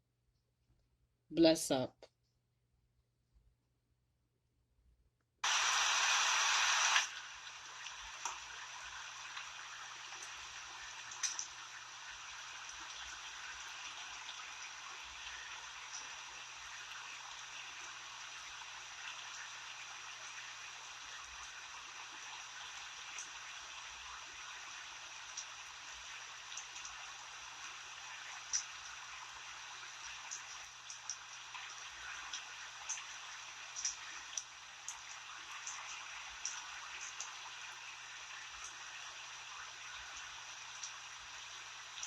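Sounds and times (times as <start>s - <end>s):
rain hissing: 5.4s - 23.8s
raindrops ticking: 11.0s - 11.6s.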